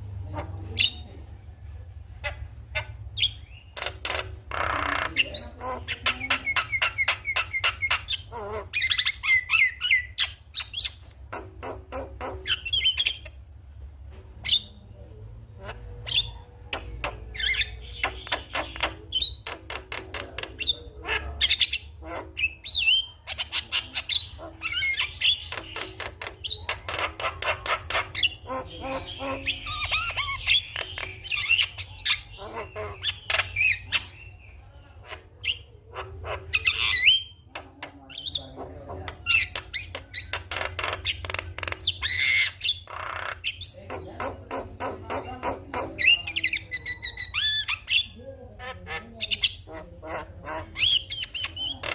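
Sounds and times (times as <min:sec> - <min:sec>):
bird singing: 0:02.2 - 0:13.4, 0:15.6 - 0:51.9.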